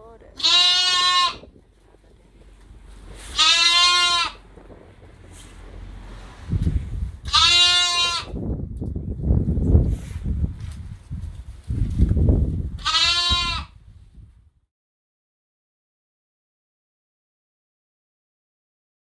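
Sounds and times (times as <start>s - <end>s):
wind buffeting microphone: 0.0s - 14.6s
lamb bleating: 0.3s - 1.5s, 3.3s - 4.4s, 7.2s - 8.4s, 12.8s - 13.7s.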